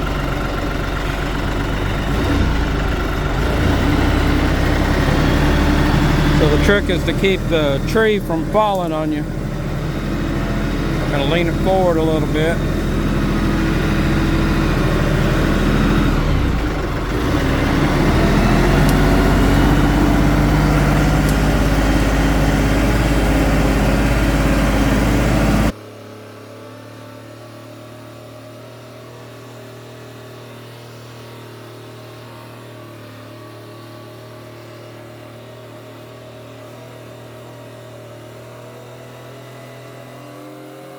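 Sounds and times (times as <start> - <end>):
tractor diesel engine under load: 0.0 - 26.1.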